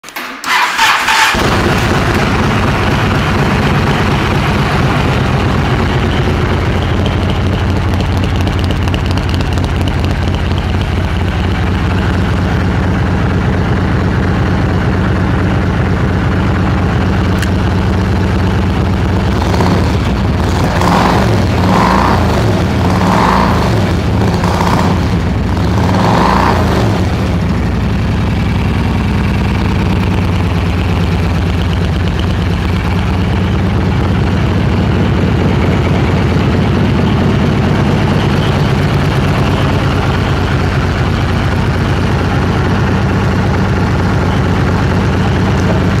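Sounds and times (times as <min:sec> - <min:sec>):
motorcycle engine revving and idling: 0:00.5 - 0:46.0.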